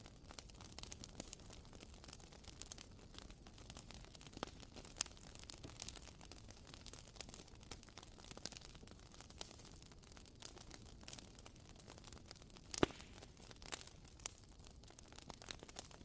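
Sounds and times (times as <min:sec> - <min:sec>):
candle wick crackling: 0:12.7 - 0:13.4.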